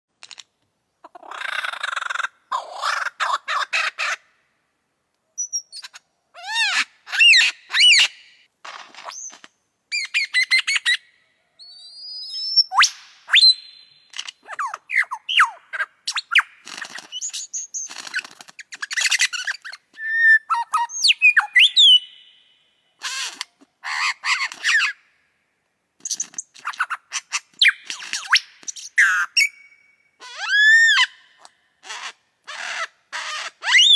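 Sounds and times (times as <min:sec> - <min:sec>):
lyrebird singing: 0:05.4 - 0:08.3, 0:09.9 - 0:18.0, 0:18.6 - 0:25.0, 0:26.1 - 0:33.9.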